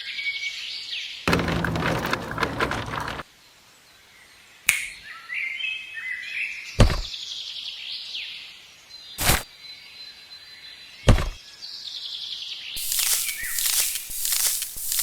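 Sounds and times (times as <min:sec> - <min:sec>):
noisy clatter: 0:01.3 - 0:03.2
birds chirping: 0:12.8 - 0:15.0.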